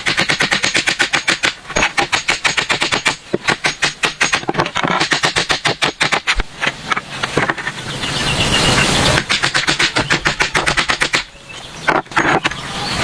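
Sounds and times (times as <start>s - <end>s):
rapid sharp knocks: 0.0s - 6.5s, 9.2s - 11.3s.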